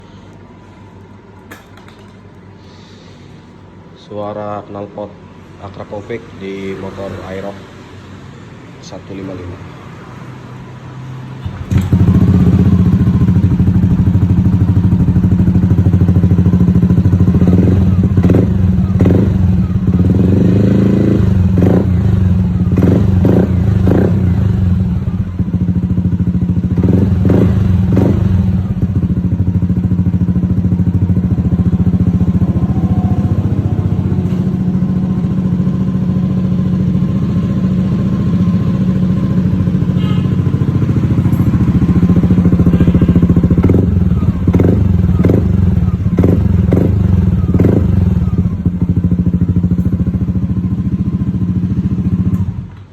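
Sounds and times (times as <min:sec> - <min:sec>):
scooter engine idling: 0:11.4 - 0:52.9.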